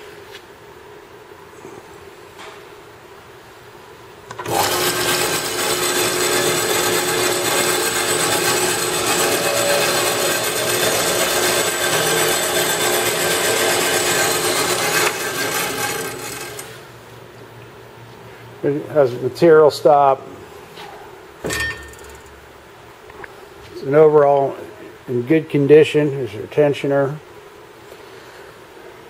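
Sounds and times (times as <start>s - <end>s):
band saw running: 4.3s - 16.9s, 21.5s - 22.4s.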